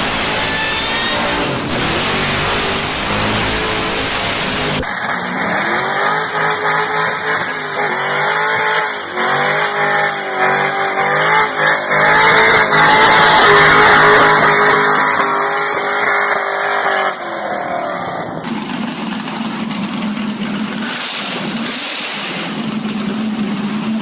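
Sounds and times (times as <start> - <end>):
car engine revving: 0.0 - 17.8, 18.4 - 24.0.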